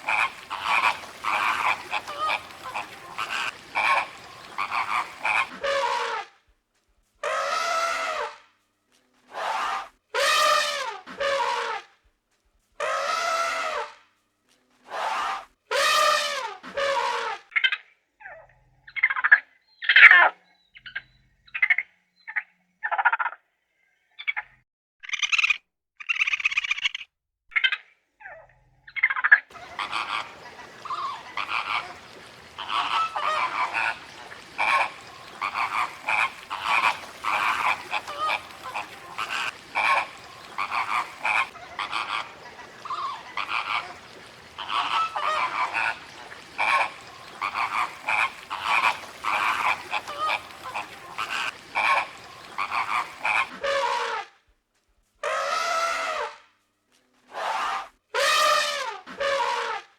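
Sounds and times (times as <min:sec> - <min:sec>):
frogs croaking: 0:00.0 - 0:05.5, 0:29.5 - 0:53.5.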